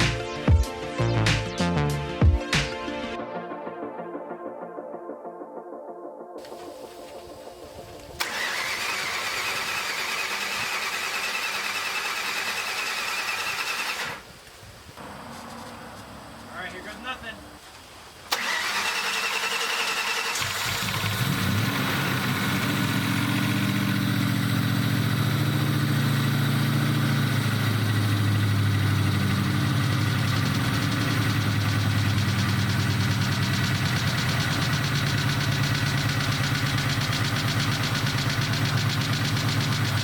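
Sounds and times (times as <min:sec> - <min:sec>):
car engine idling: 0:06.5 - 0:14.3, 0:15.0 - 0:17.6, 0:18.3 - 0:40.0
starter motor cranking: 0:08.1 - 0:14.3, 0:18.3 - 0:25.4, 0:28.4 - 0:40.0.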